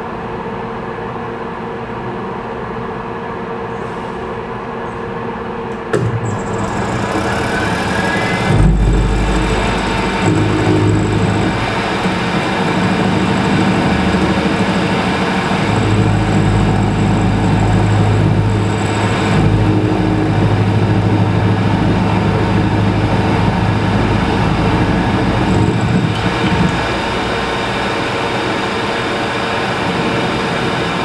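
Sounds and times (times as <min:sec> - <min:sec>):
machine tool motor hum: 0:05.8 - 0:28.7
metalworking noise: 0:05.9 - 0:28.6.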